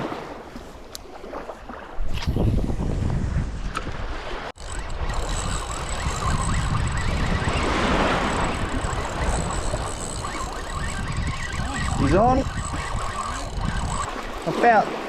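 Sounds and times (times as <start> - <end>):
wind buffeting microphone: 1.9 - 15.0
sea water washing: 4.4 - 15.0.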